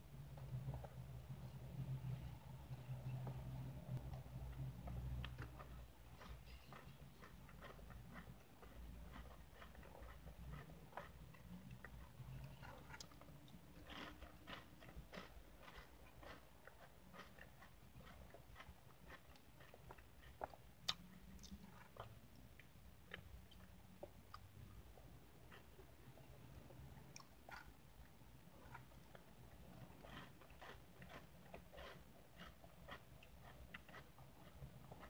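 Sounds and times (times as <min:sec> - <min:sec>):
wet mouth clicks chewing: 0:04.8 - 0:24.6, 0:28.6 - 0:35.0.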